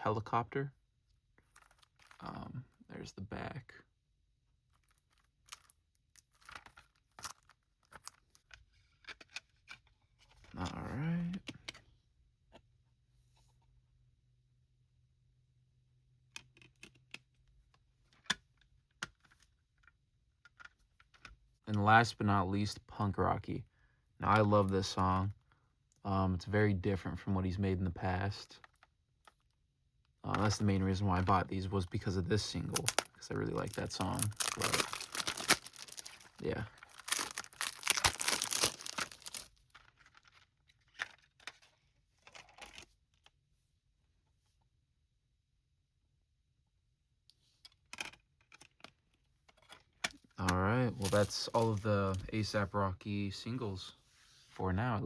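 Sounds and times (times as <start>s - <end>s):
plastic wrapping tearing and crumpling: 32.7s - 41.2s, 51.0s - 51.8s
case rustles and clicks: 33.7s - 41.6s.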